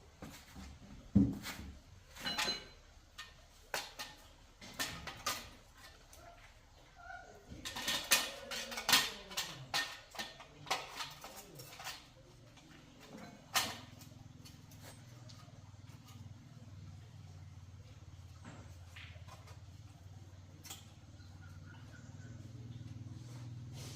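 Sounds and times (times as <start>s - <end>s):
metal tools clinking: 2.1s - 6.2s, 7.5s - 16.4s.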